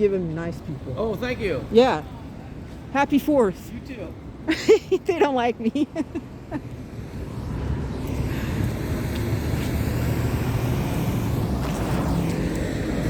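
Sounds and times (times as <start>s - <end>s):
vehicle engine running: 6.3s - 13.0s.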